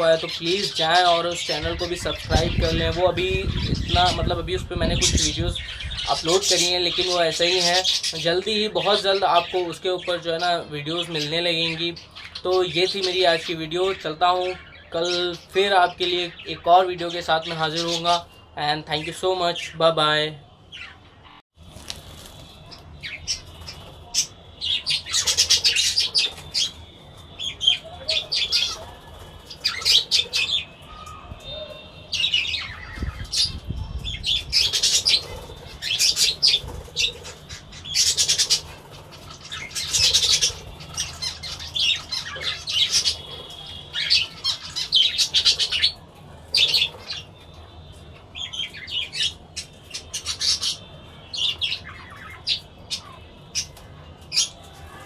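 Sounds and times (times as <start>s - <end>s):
budgerigars chattering and squawking: 0.0s - 18.2s, 23.0s - 30.8s, 32.1s - 47.3s.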